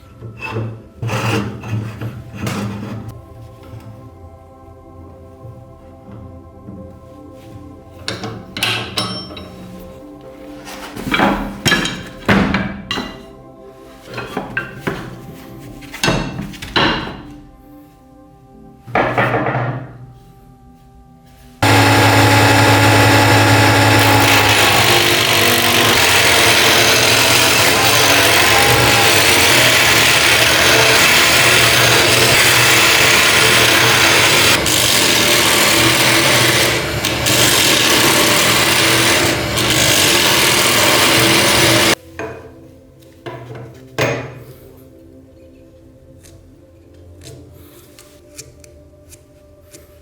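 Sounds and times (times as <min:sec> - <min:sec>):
power tool abrading: 0:21.6 - 0:42.0.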